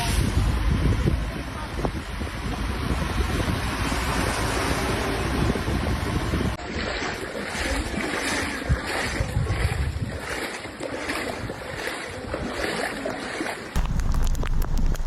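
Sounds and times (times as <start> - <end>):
wind buffeting microphone: 0.0 - 6.6, 8.5 - 10.3, 13.8 - 15.0
water rushing and sloshing: 2.3 - 15.0.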